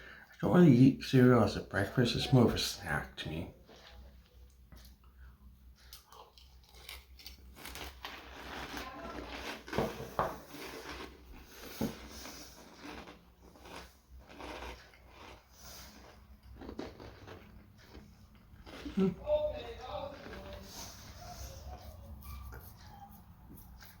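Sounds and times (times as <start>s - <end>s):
person chewing crunchy cereal: 5.7s - 21.9s.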